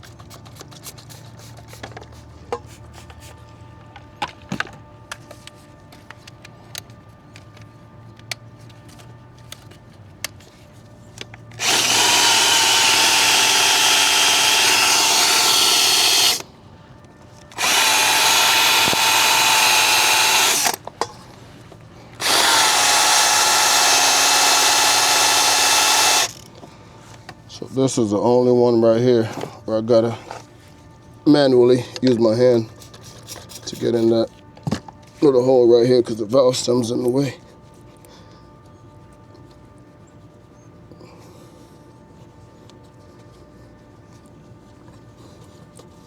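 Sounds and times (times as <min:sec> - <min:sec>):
power drill polishing metal: 0:11.6 - 0:16.4, 0:17.5 - 0:20.8, 0:22.2 - 0:26.4.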